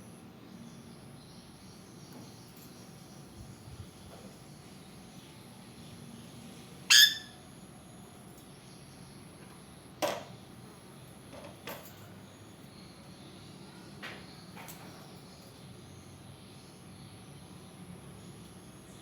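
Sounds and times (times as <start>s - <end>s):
parrot harsh screech: 6.9s - 7.4s.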